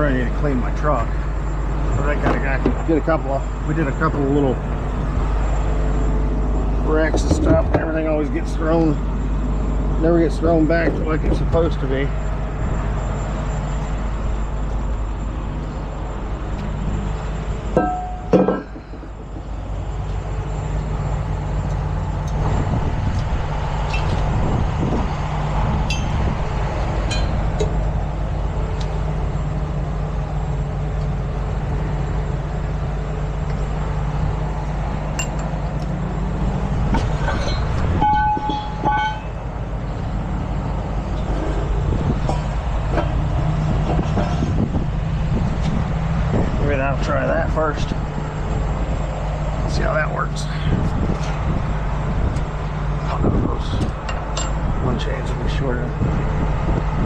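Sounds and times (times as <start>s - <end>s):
diesel engine running: 0.0s - 57.0s
metallic knocks: 17.7s - 19.5s, 27.1s - 27.8s, 36.9s - 39.4s.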